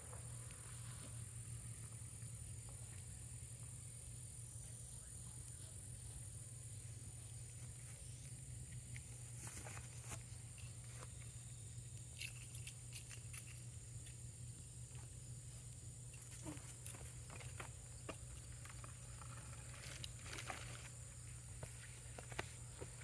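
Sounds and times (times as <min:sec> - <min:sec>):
steady low hum: 0:00.0 - 0:23.0
campfire crackling: 0:13.3 - 0:23.0.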